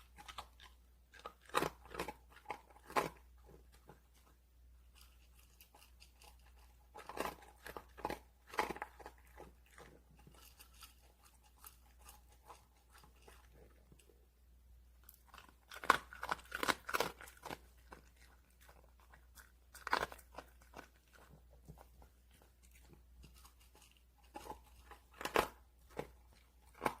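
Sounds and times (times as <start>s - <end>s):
dog crunching dry kibble: 0.0s - 14.2s, 15.0s - 27.0s.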